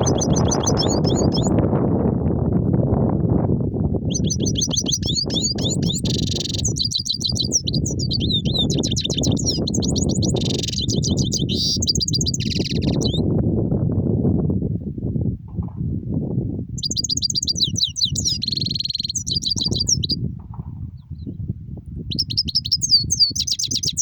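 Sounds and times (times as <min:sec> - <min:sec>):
finch twittering song: 0:00.0 - 0:01.6, 0:04.0 - 0:13.3, 0:16.8 - 0:20.3, 0:22.1 - 0:24.0.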